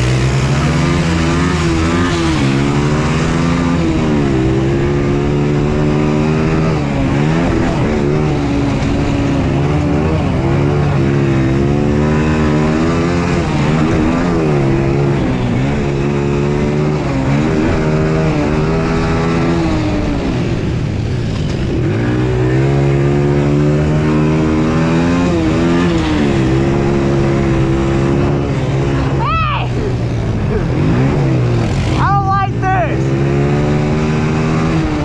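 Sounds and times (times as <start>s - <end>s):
quad engine revving: 0.0s - 35.0s.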